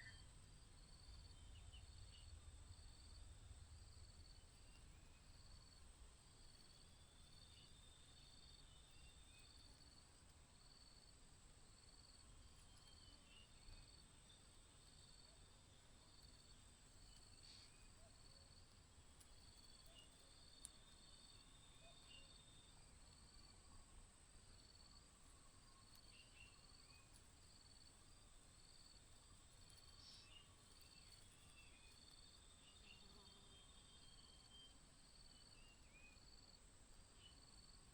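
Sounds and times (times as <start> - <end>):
insect short chirp: 0.0 - 3.2, 16.1 - 18.5, 19.3 - 23.5, 29.6 - 37.8.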